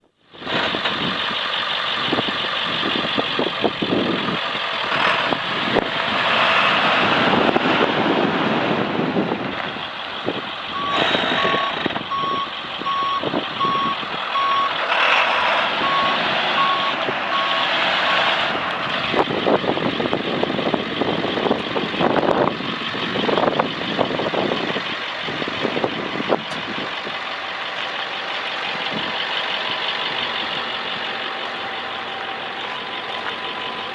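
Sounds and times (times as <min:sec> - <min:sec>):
diesel truck engine running: 0:00.0 - 0:33.9
reverse alarm beeping: 0:10.7 - 0:14.8, 0:15.8 - 0:18.4.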